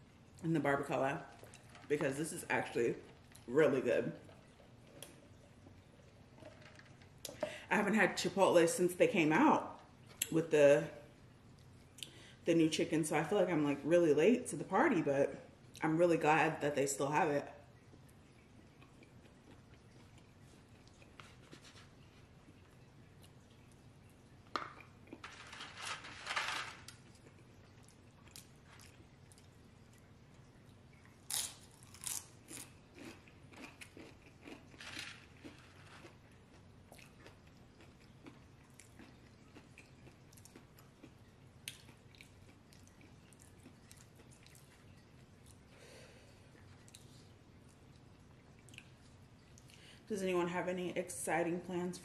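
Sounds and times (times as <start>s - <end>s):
person chewing crunchy food: 17.9s - 23.9s, 24.6s - 25.6s, 26.8s - 45.9s.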